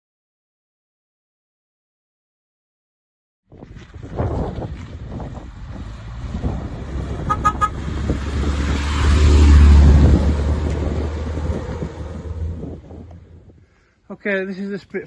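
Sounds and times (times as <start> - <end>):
vehicle passing with low rumble: 3.6 - 13.6.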